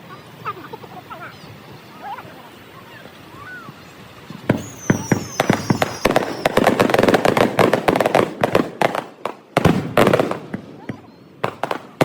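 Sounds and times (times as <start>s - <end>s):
falling firework whistles: 3.4s - 12.0s
fireworks bangs and crackling: 3.7s - 12.0s.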